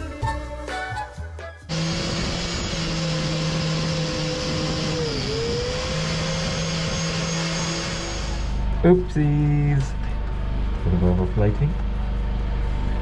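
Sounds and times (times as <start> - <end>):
wire brush grinding steel: 1.7 - 8.6.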